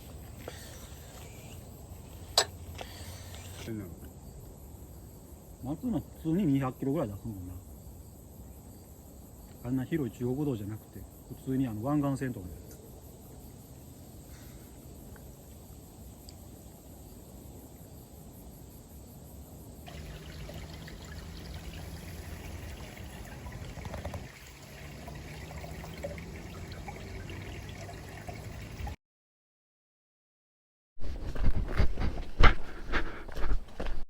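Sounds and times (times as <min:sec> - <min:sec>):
trickle of running water: 0:19.8 - 0:29.0.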